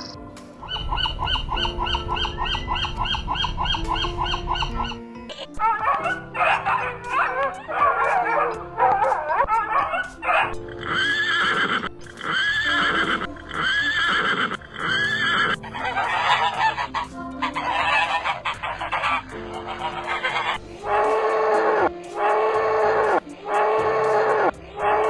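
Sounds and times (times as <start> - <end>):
animal calls: 0.0 - 25.0
background music: 0.0 - 25.0.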